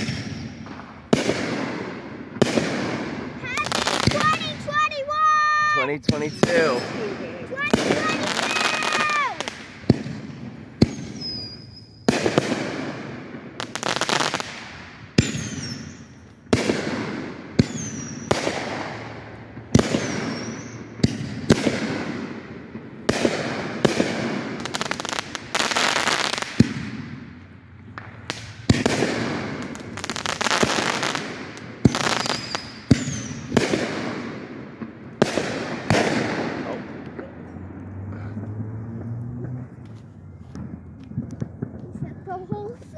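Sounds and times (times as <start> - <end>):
fireworks whistles: 0.0 - 1.8, 2.4 - 22.2, 28.1 - 34.3
fireworks bangs and crackle: 0.0 - 42.9.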